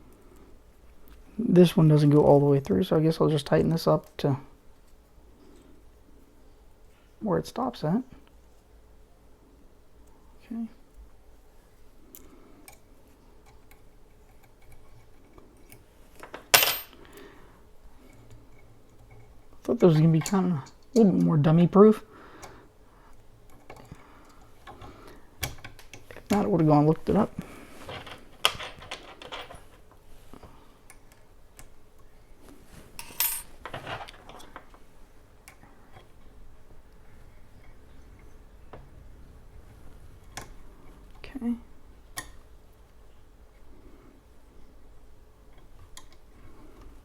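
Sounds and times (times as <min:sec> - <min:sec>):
metal parts clicking and clinking: 0:27.8 - 0:30.0, 0:33.0 - 0:34.8.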